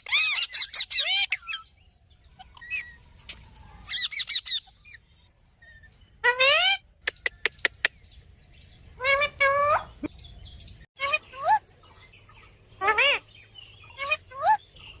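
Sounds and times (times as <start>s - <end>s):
parrot calling: 0.0s - 1.7s, 3.8s - 8.0s, 9.0s - 10.1s, 12.8s - 14.8s.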